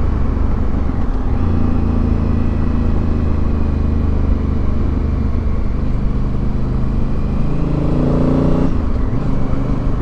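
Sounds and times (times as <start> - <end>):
motorcycle engine cruising: 0.0 - 10.0
wind and road noise: 0.0 - 10.0.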